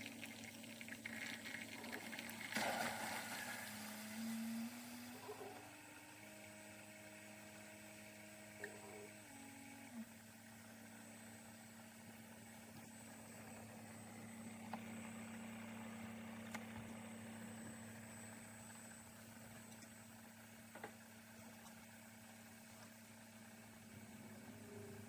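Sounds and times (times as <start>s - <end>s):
coffee maker pump hum: 0.0s - 25.0s
water hissing and spluttering: 1.0s - 4.3s.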